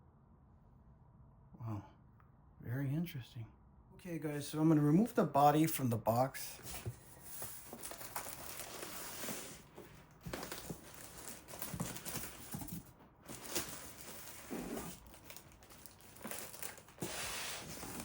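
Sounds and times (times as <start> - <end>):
packaging crinkling and rustling: 6.5 - 18.0.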